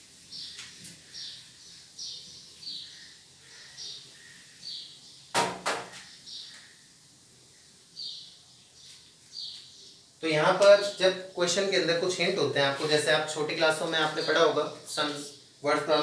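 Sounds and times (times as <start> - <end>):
bird chirping: 0.3 - 5.3, 5.9 - 11.2
loud clattering knock: 5.4 - 6.0.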